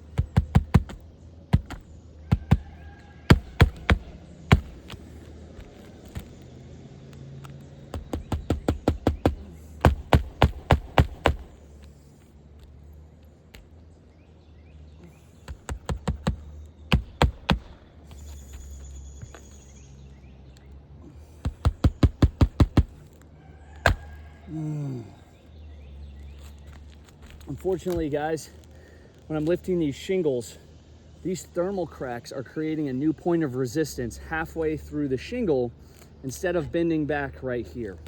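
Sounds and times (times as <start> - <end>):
hammer driving nails into shingle: 0.0 - 6.4, 7.4 - 11.6, 15.4 - 18.3, 21.2 - 23.1, 23.8 - 24.1.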